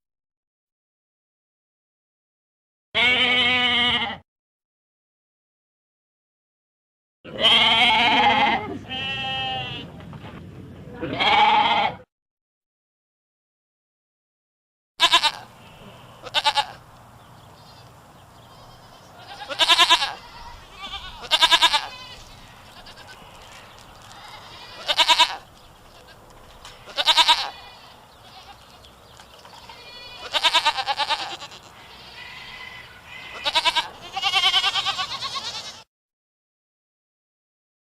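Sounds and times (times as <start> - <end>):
goat bleating: 3.0 - 4.2, 7.3 - 9.9, 11.0 - 12.0, 15.0 - 16.9, 17.6 - 35.9.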